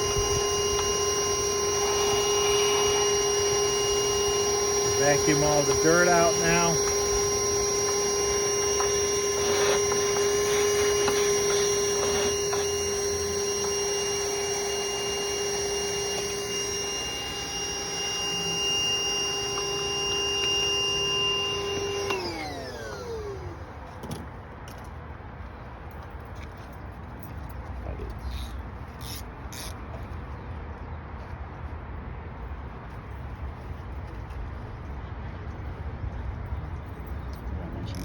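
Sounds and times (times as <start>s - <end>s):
vacuum motor spinning down: 0.0s - 23.7s
vacuum cleaner whine: 0.0s - 23.8s.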